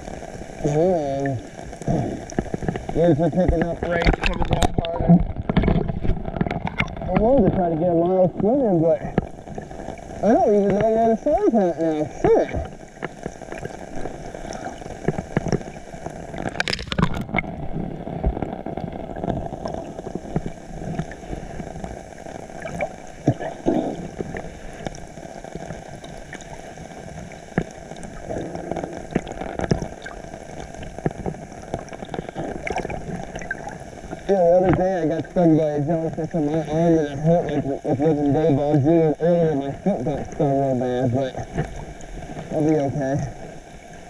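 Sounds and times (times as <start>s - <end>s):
muffled water sloshing and splashing: 0.0s - 44.0s.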